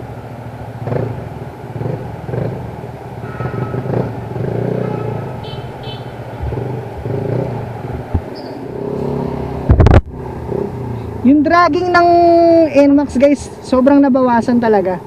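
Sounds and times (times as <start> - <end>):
scooter engine running: 0.8 - 12.6.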